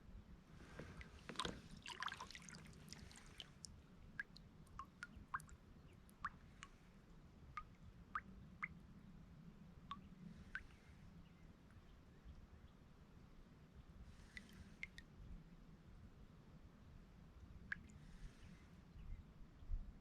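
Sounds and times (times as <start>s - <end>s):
water drops falling into lake: 1.0s - 5.6s, 6.2s - 6.8s, 7.6s - 8.8s, 9.9s - 10.7s.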